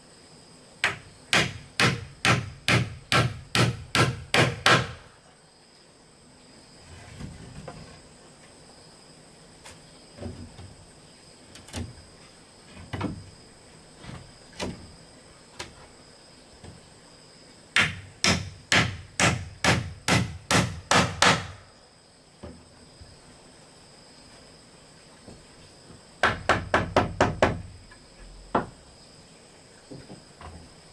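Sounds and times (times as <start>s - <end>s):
tool striking wood: 0.8s - 5.1s, 17.8s - 21.6s.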